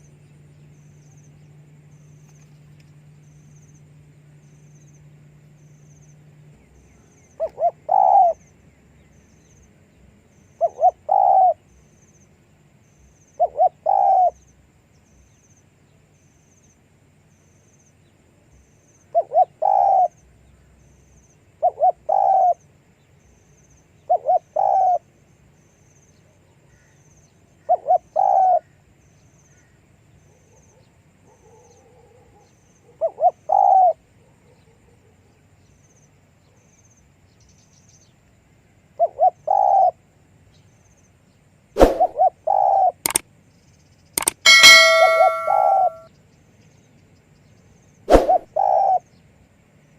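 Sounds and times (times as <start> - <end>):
dove cooing: 7.4 - 8.4, 10.6 - 11.6, 21.6 - 22.6, 33.0 - 34.0.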